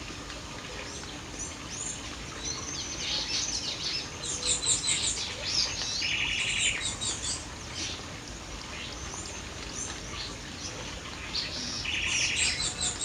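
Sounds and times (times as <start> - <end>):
songbirds chirping and singing: 8.7 - 13.0.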